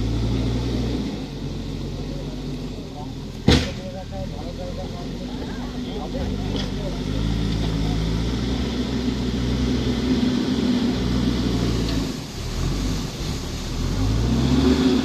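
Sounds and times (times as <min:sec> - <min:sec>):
heavy machinery engine running: 0:00.0 - 0:15.0.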